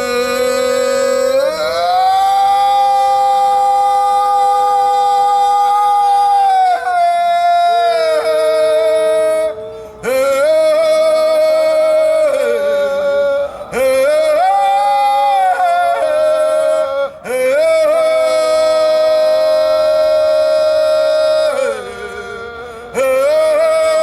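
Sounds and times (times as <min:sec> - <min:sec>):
wordless vocal toning: 0:09.6 - 0:18.6.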